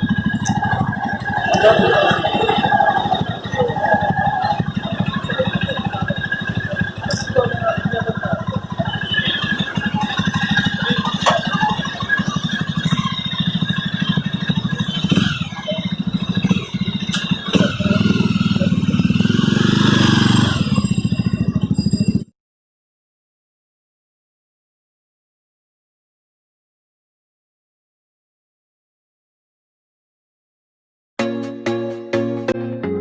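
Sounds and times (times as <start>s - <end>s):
motorcycle engine running: 0.0s - 22.3s.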